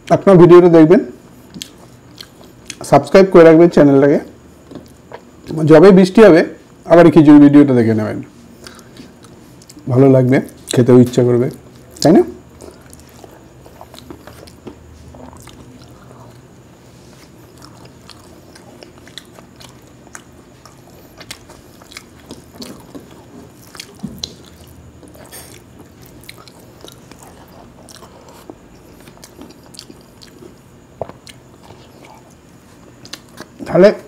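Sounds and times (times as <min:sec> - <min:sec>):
man chewing food: 0:01.3 - 0:02.8, 0:04.4 - 0:05.6, 0:08.4 - 0:09.9, 0:11.5 - 0:33.7.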